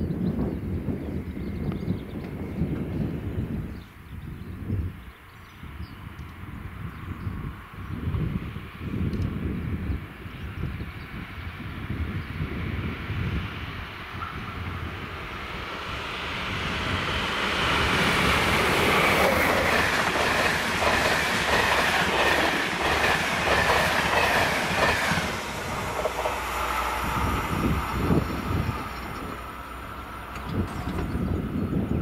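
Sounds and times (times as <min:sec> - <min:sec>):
train passing with high whine: 0:05.6 - 0:32.0
wheels clicking over rail joints: 0:28.0 - 0:31.4.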